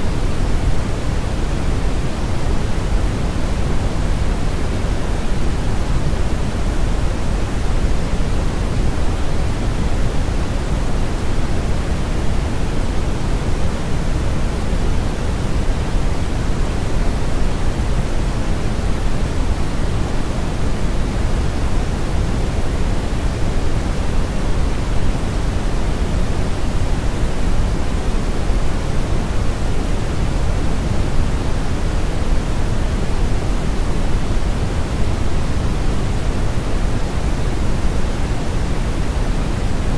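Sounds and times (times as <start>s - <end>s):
brown noise hiss: 0.0s - 39.9s.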